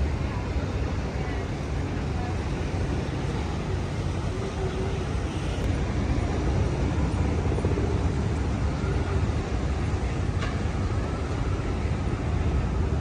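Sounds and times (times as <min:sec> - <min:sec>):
low engine rumble: 0:00.0 - 0:05.8.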